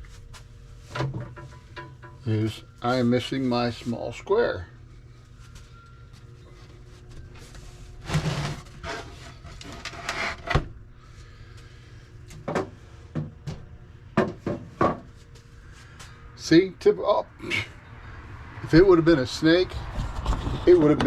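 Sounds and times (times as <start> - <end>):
tools and wood knocking and scraping: 0.9 - 2.3, 14.2 - 15.2, 19.8 - 21.0.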